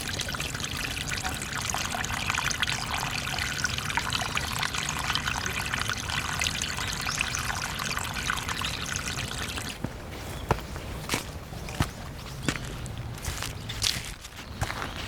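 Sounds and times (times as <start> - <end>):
water trickling and splashing: 0.0 - 15.0
footsteps: 9.7 - 15.0.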